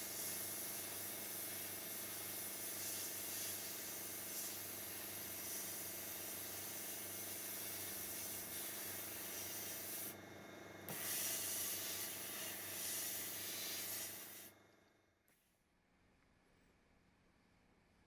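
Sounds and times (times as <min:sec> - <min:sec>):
pressure washer spray hiss: 0:00.0 - 0:10.1, 0:10.9 - 0:14.5.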